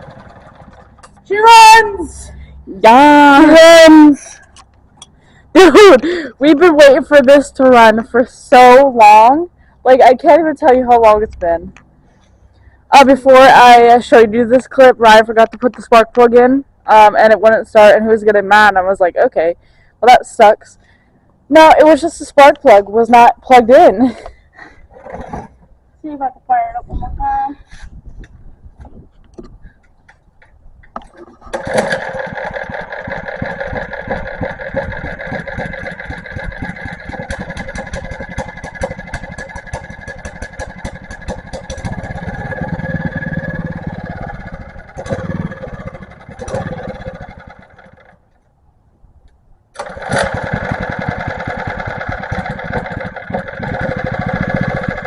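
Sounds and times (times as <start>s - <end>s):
small gasoline engine running unevenly: 0.0s - 1.2s, 31.4s - 48.2s, 49.8s - 55.0s.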